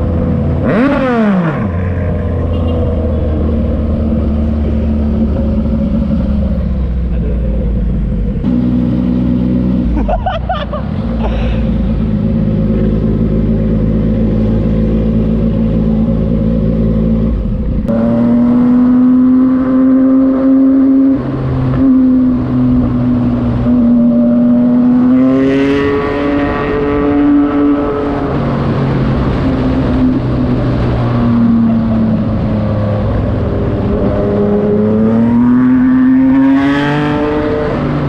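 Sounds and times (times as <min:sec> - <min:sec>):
motorcycle engine running: 0:11.0 - 0:18.0.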